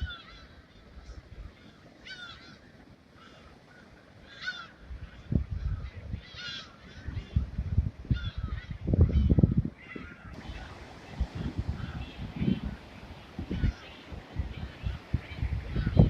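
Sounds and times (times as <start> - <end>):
seagulls squawking: 8.1 - 16.0
low rumbling noise: 8.9 - 16.0.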